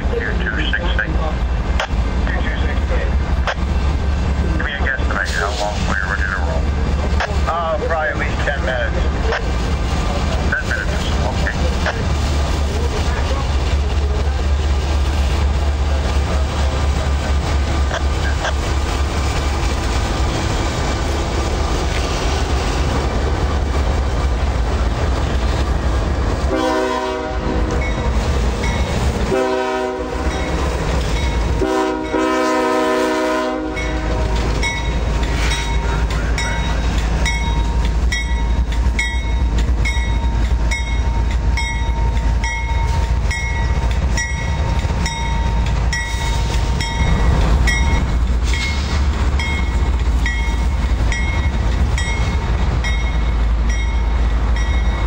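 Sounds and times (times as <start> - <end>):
diesel freight train rumbling: 0.0 - 55.0
train air horn: 26.5 - 27.8, 29.3 - 30.4, 31.6 - 34.3.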